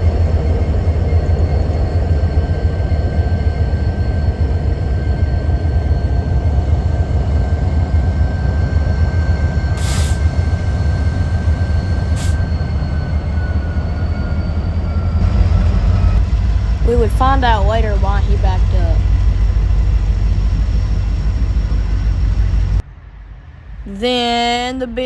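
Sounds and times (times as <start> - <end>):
wheel squeal: 0.0 - 17.2
train rumbling on rails: 0.0 - 25.0
short hisses: 9.8 - 10.2.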